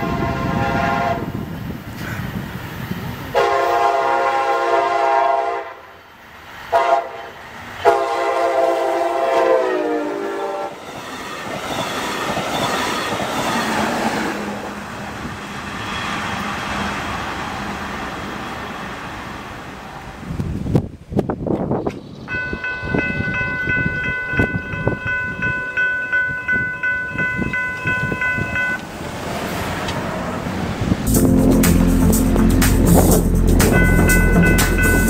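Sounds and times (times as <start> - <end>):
train horn blasts: 0.0 - 1.4, 3.3 - 6.0, 6.7 - 10.8
train wheels clattering on rails: 10.8 - 14.3.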